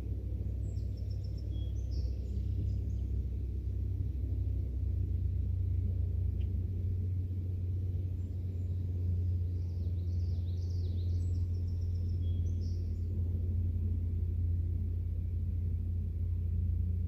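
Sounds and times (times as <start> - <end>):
low steady rumble: 0.0 - 17.0
faint bird chirps: 0.6 - 3.3, 8.1 - 13.2.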